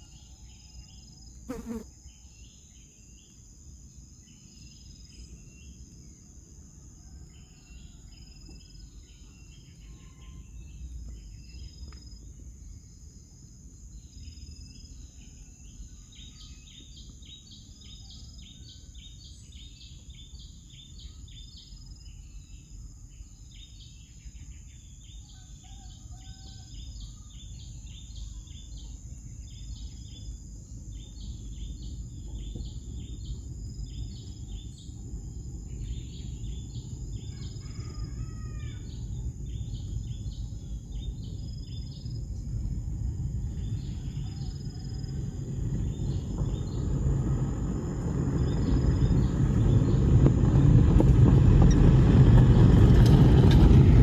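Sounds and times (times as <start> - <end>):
high insect drone: 0.0 - 52.3
low rumble: 38.8 - 54.0.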